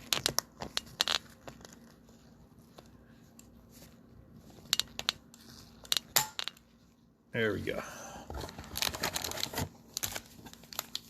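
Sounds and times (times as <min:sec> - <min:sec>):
plastic wrap crinkling: 0:00.0 - 0:06.2, 0:08.4 - 0:11.0.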